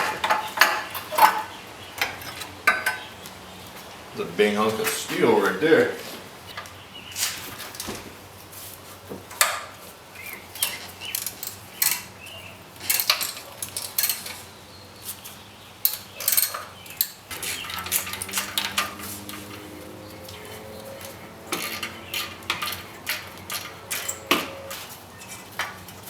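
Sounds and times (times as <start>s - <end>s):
metal tools clinking and knocking: 0.0s - 3.2s, 10.4s - 14.6s, 15.8s - 26.0s.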